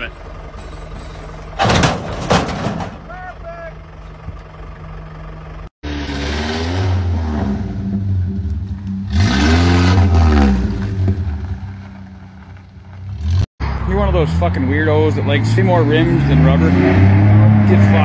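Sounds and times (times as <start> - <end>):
quiet engine hum: 0.0 - 5.7
truck engine revving: 0.0 - 18.0.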